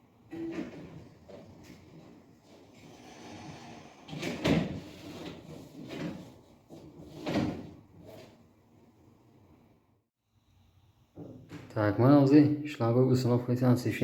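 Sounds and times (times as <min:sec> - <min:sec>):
objects knocking and scraping: 0:00.2 - 0:08.4.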